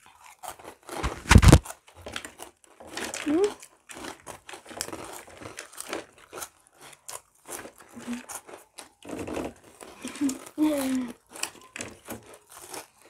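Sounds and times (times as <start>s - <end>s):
crunchy snacks being chewed: 0.0s - 13.0s
packet crinkling: 0.2s - 8.9s.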